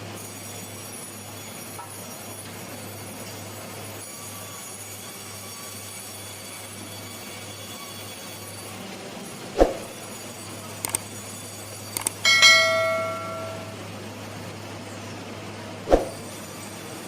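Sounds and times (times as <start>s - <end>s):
sharp thud: 9.6s - 9.9s, 15.9s - 16.2s
light clicks: 12.0s - 12.2s
metallic clang ringing like a bell: 12.0s - 13.9s.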